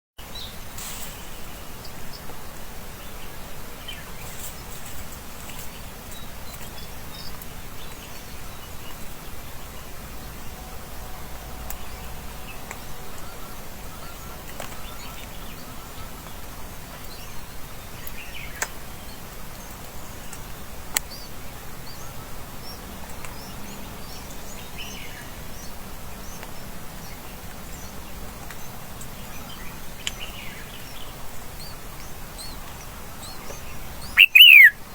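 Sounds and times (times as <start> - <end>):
outdoor background hiss: 0.2 - 34.9
wild birds chirping: 0.2 - 34.9.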